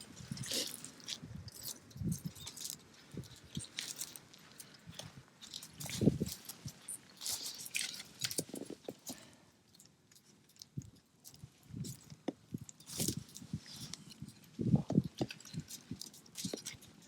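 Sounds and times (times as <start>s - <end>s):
chewing with small crunches: 0.0s - 17.0s.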